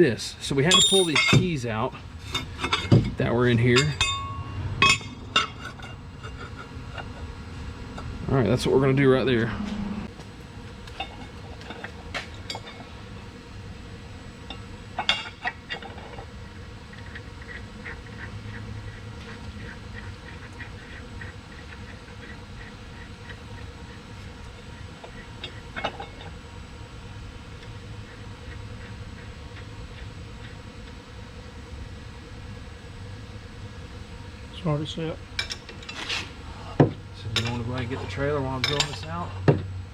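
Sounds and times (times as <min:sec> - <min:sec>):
sharp metal clanks: 0:00.7 - 0:01.5.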